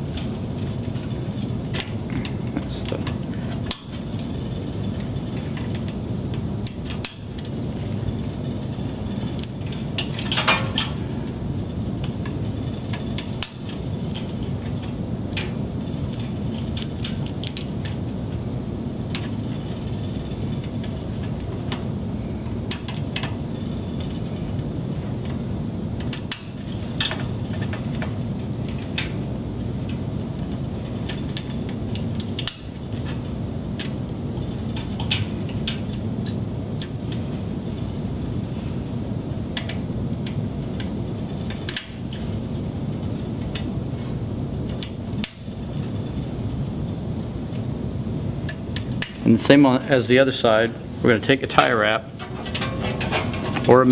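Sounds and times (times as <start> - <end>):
rattling of handling: 0.0 - 38.7, 50.6 - 53.9
low hum: 0.0 - 53.9.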